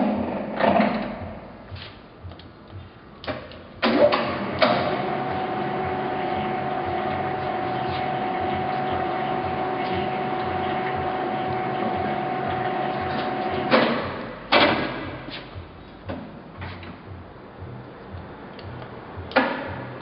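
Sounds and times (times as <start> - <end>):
lathe running with whine: 4.6 - 13.8.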